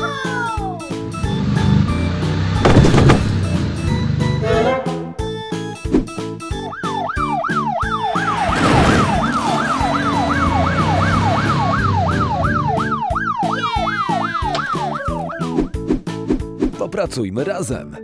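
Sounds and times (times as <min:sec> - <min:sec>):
electronic wailing siren: 0:06.6 - 0:15.4.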